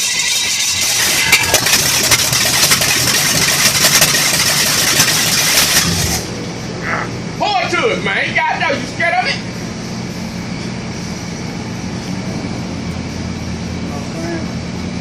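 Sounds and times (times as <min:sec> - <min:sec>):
engine running with sharp pops: 0:00.0 - 0:06.5.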